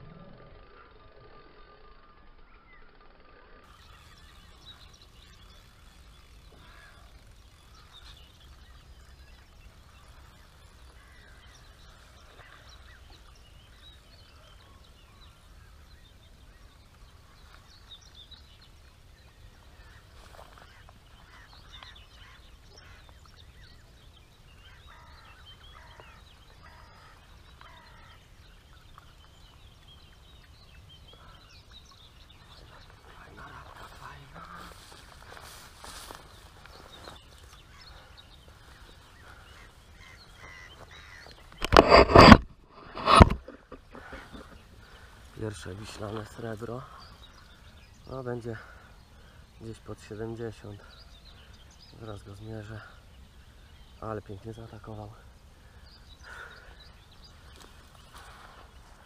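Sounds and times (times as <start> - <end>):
faint birdsong: 0.0 - 59.0.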